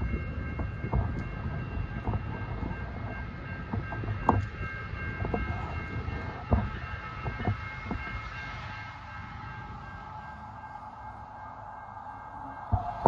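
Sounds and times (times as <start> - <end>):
scattered knocks: 0.0 - 8.3
train low rumble: 0.0 - 13.0
faint high tones: 10.0 - 13.0.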